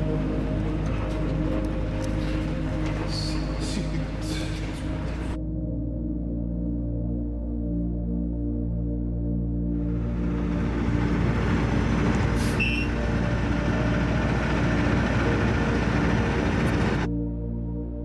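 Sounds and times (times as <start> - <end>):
truck engine and road noise: 0.0 - 5.4, 9.8 - 17.1
faint ambient music: 0.0 - 18.0.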